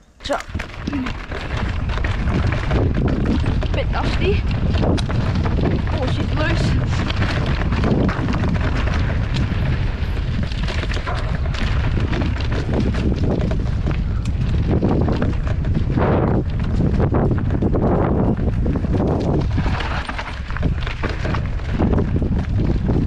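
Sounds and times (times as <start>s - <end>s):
bike knocking and rattling: 0.0s - 23.0s
tyres rolling on dirt: 0.0s - 23.0s
wind buffeting: 0.0s - 23.0s.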